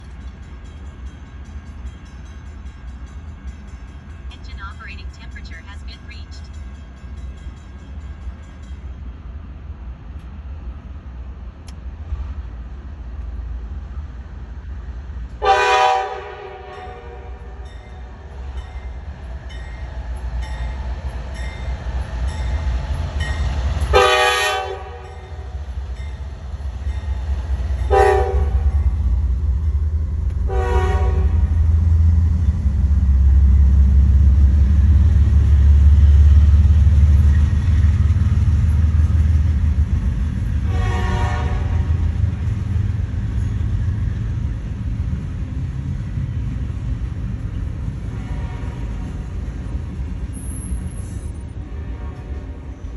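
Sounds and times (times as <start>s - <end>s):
train rumbling: 0.0s - 52.9s
train horn blasts: 15.4s - 17.6s, 23.9s - 25.3s, 27.8s - 28.8s, 30.4s - 31.6s, 40.6s - 42.1s, 48.2s - 49.0s, 51.7s - 52.6s.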